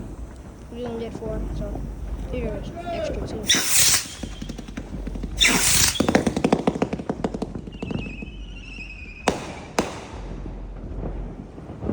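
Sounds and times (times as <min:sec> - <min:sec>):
rocket launch whoosh: 0:00.0 - 0:10.5
firework bangs: 0:00.0 - 0:11.9
strobe fireworks crackling pops: 0:00.0 - 0:11.9
wavering whistle: 0:03.4 - 0:04.8, 0:05.4 - 0:06.3, 0:07.7 - 0:09.3.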